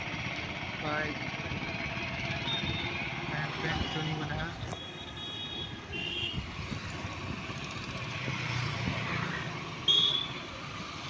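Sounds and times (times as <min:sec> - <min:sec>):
traffic rumble and hiss: 0:00.0 - 0:11.0
loud high-pitched beep: 0:02.4 - 0:03.0.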